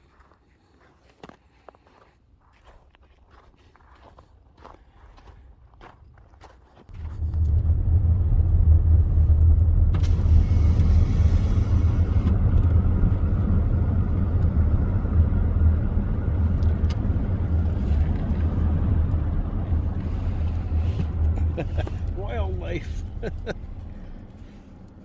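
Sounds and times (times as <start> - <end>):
car engine and road noise: 6.9 - 25.0.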